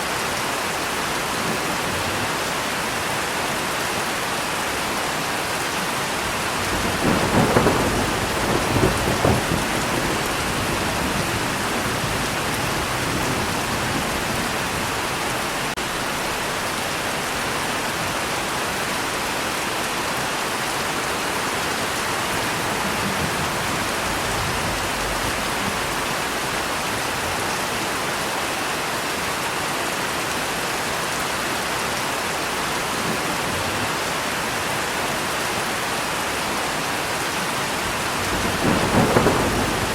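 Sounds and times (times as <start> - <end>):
heavy rain: 0.0 - 39.9
thunder rumbling: 6.2 - 17.4, 21.9 - 27.6, 37.8 - 39.9.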